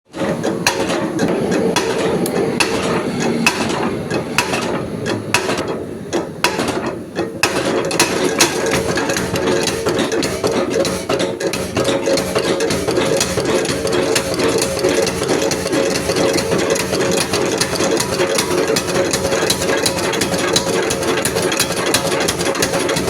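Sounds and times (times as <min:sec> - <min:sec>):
steady hum: 0:00.2 - 0:20.6
metal being struck: 0:00.6 - 0:16.5.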